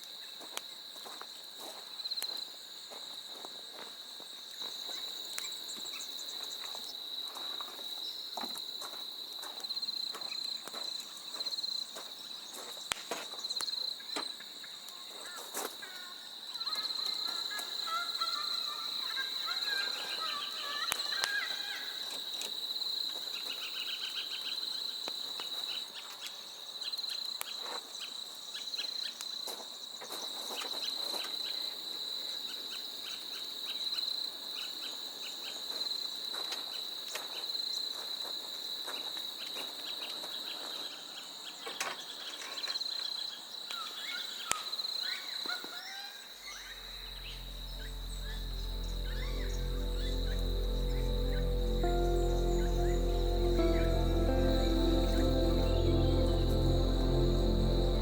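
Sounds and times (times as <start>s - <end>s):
high-pitched insect chorus: 46.4s - 58.0s.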